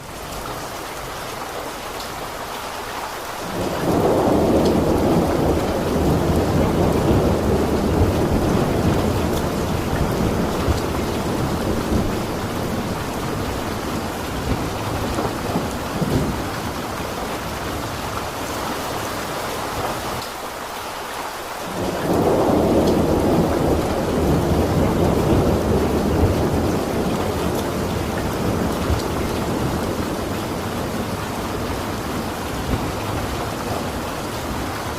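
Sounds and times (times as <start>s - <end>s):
steady rain: 0.0s - 34.9s
thunder rolling: 3.5s - 18.4s, 21.7s - 34.9s.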